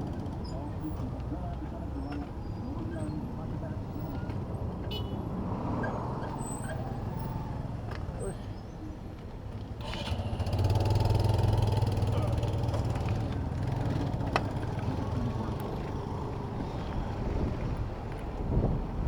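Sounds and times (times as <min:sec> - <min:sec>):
vehicle engine running: 0:09.8 - 0:17.5.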